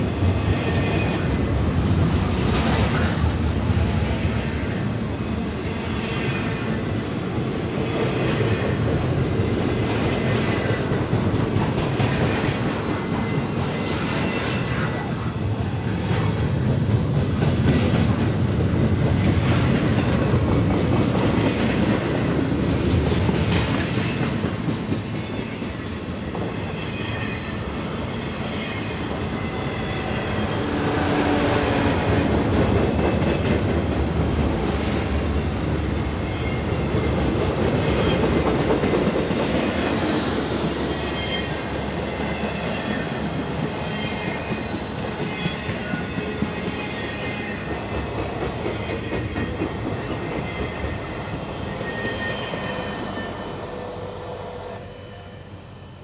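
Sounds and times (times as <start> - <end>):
train cars rolling past: 0.0 - 56.0
faint wheel squeal: 51.3 - 56.0.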